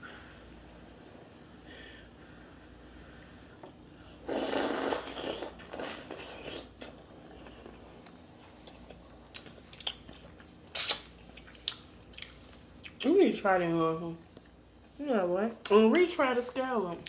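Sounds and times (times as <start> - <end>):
chewing clicks and smacks: 7.4 - 13.1.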